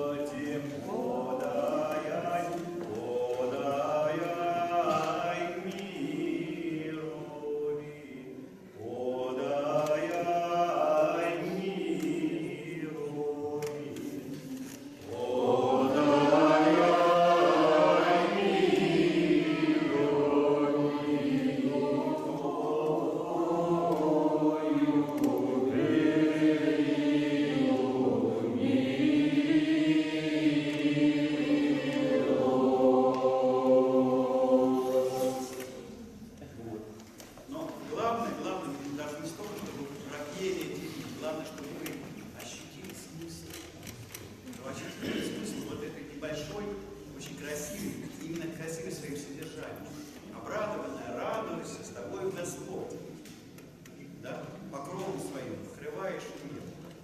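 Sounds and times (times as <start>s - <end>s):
group singing unaccompanied chant: 0.0s - 36.2s, 45.0s - 45.8s.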